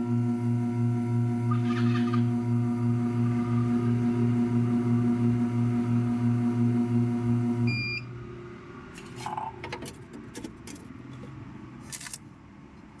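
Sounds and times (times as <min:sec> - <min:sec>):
pump pulsing hum: 0:00.0 - 0:08.2.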